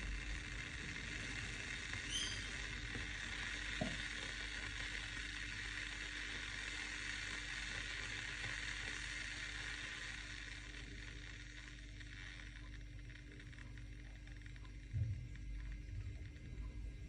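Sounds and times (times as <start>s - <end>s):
electric kettle heating water: 0.0s - 17.0s
low hum: 8.9s - 17.0s.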